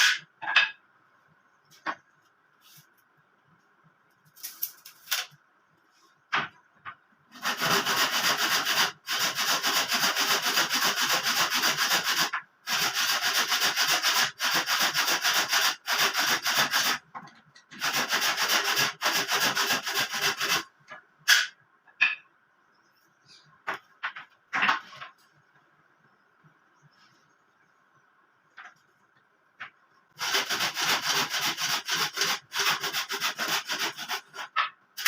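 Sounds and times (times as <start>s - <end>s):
wood being sanded by hand: 7.4s - 17.0s, 17.8s - 20.6s, 30.2s - 34.5s.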